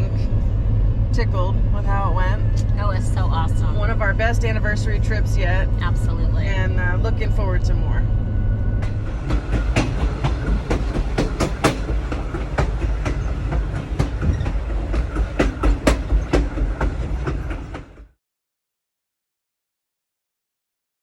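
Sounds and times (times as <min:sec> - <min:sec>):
sharp clicks and knocks: 0:08.8 - 0:18.1.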